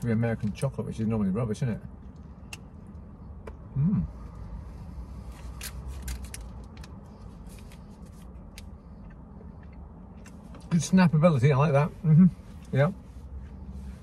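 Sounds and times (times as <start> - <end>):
person humming mmm: 3.7 - 4.1.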